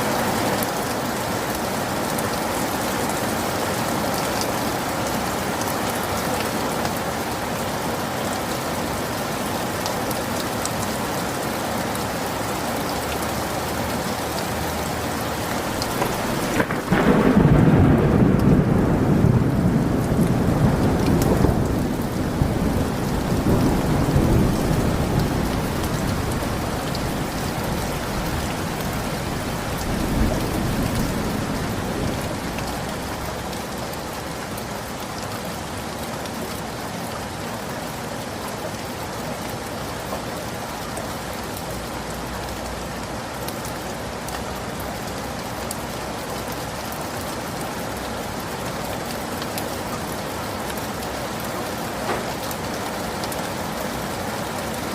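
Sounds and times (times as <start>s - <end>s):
rain falling steadily: 0.0s - 54.9s
rolling thunder rumble: 15.6s - 33.6s.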